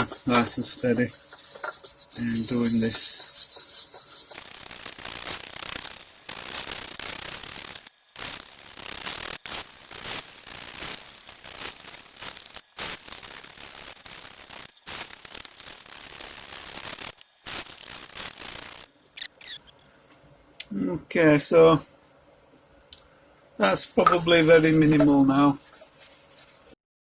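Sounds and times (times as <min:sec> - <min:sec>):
abrasive paper rasping on frets: 0:00.0 - 0:18.9, 0:23.6 - 0:26.8.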